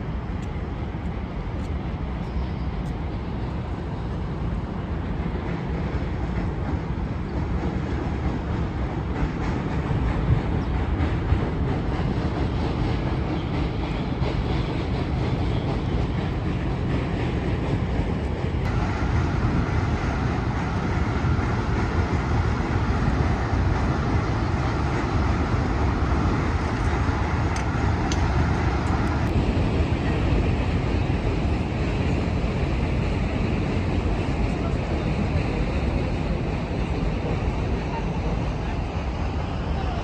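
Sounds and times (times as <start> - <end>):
train rumbling: 0.0 - 40.0.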